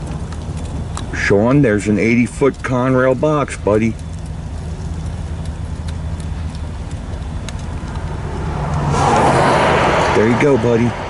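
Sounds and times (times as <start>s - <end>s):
faint clicks: 0.0s - 1.2s, 2.4s - 8.8s
train engine drone: 0.0s - 11.0s
rushing noise: 7.7s - 11.0s.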